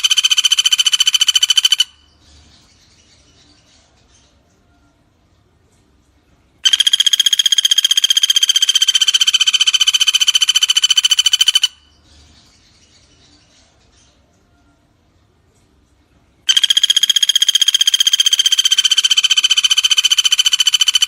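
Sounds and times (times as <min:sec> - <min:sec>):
woodpecker rattling trill: 0:00.0 - 0:02.4, 0:06.6 - 0:12.0, 0:16.5 - 0:21.0.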